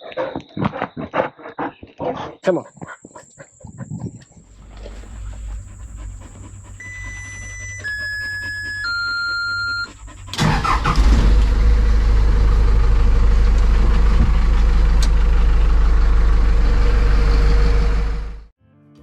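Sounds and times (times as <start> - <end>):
vehicle engine running: 4.4 - 18.5
electronic warning chime: 6.8 - 10.0.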